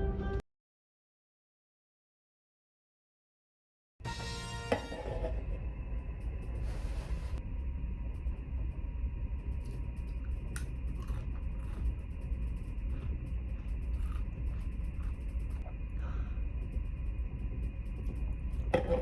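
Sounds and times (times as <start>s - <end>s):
ship engines rumbling: 4.1s - 19.0s
faint clicks and ticks: 8.1s - 19.0s.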